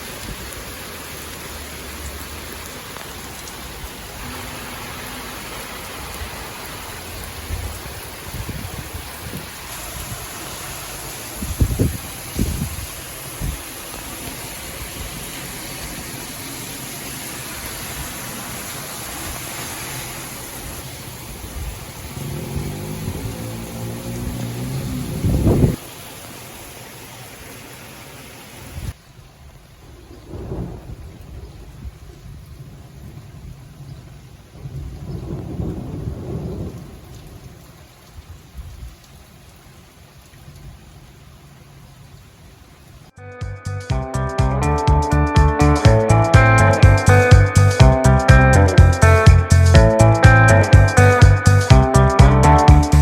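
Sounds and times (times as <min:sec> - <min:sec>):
heavy rain hiss: 0:00.0 - 0:43.2, 0:45.0 - 0:53.0
thunder rumbling: 0:20.5 - 0:25.8, 0:29.8 - 0:37.6.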